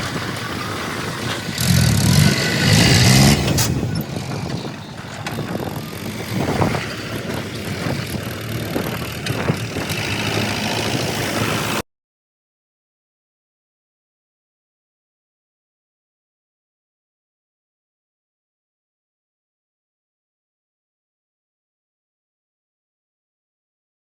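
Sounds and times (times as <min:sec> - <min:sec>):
diesel backhoe engine running: 0:00.0 - 0:11.8.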